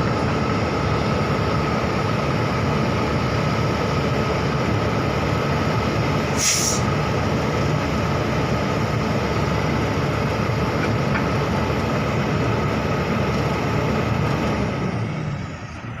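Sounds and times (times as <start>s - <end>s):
heavy diesel machinery running: 0.0s - 16.0s
short air hiss: 6.4s - 6.9s.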